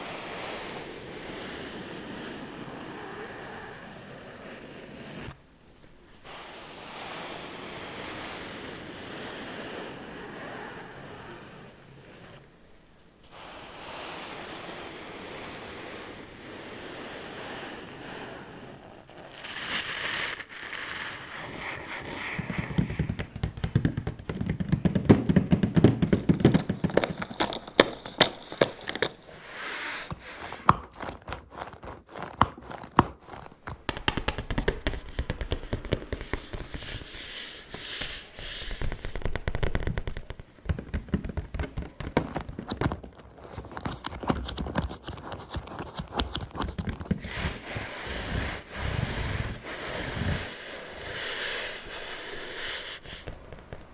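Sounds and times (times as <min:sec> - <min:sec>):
scratchy rubbing: 0:18.6 - 0:53.9
fingertip tapping: 0:21.4 - 0:37.2, 0:38.7 - 0:47.6, 0:51.5 - 0:53.9.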